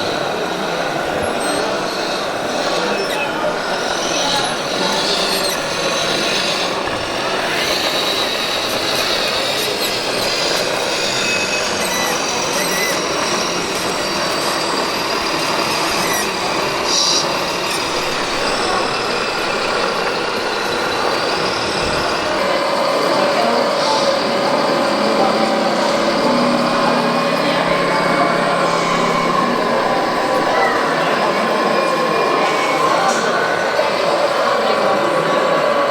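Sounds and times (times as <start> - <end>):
faint high whining tones: 0.0 - 35.9
mechanical whir: 0.0 - 35.9.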